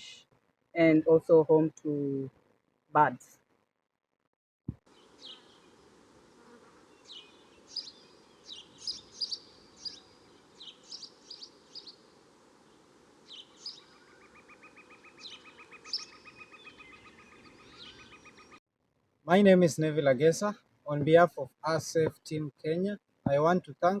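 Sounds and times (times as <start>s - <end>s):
birds chirping: 4.8s - 18.6s, 19.6s - 24.0s
faint ambient hiss: 4.9s - 18.0s, 19.3s - 24.0s.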